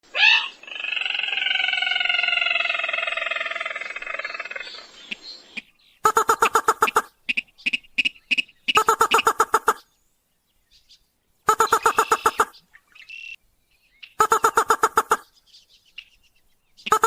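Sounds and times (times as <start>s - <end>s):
crake call played as lure: 6.1s - 9.8s, 11.5s - 12.5s, 14.2s - 15.2s.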